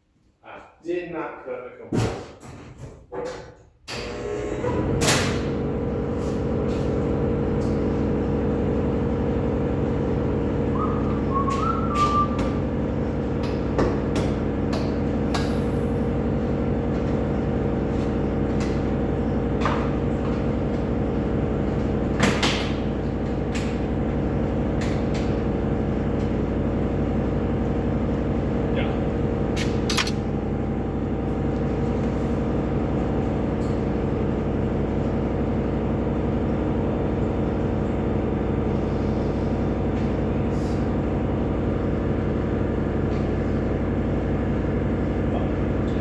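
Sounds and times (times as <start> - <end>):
clicks and knocks: 29.6 - 30.2.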